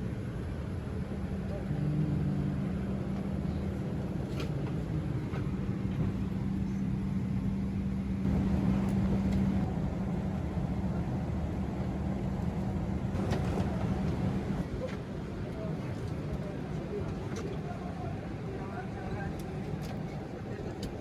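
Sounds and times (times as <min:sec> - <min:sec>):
constant low hum: 0:00.0 - 0:21.0
vehicle interior rumble: 0:01.4 - 0:14.7.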